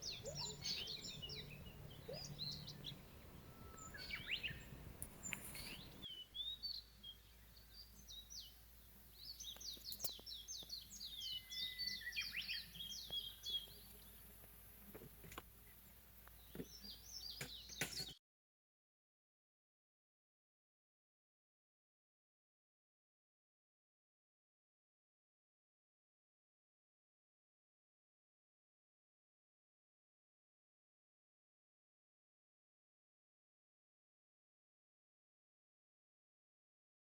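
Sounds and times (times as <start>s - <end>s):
songbirds chirping: 0.0s - 18.2s.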